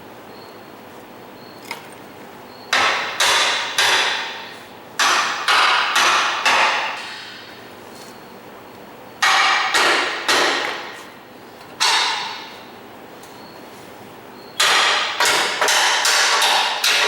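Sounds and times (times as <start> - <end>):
hammer striking steel: 2.7 - 7.5, 9.2 - 11.0, 11.8 - 12.6, 14.6 - 17.0.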